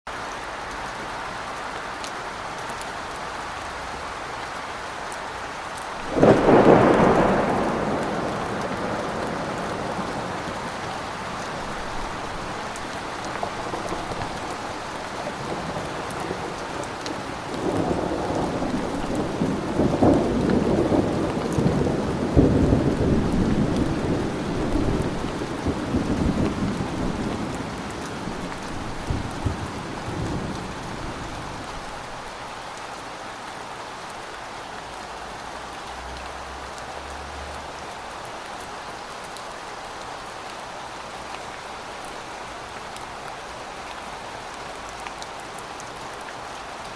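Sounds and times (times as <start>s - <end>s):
steady rain falling: 0.1s - 46.9s
thunderclap: 6.1s - 31.9s
rolling thunder: 6.1s - 32.3s.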